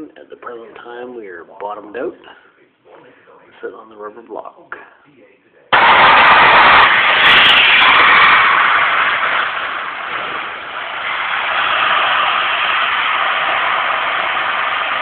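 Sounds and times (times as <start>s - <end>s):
compressed air hissing: 5.8s - 15.0s.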